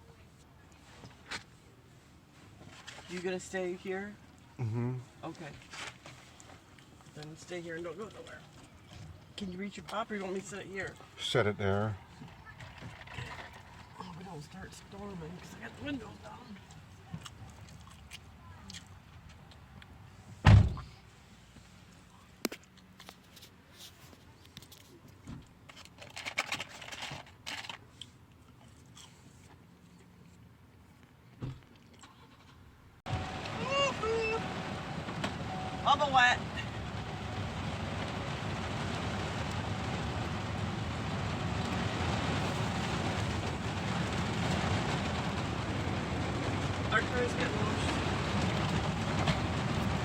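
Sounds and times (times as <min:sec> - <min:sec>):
rain pattering on a car: 0:05.2 - 0:19.2, 0:33.1 - 0:50.0.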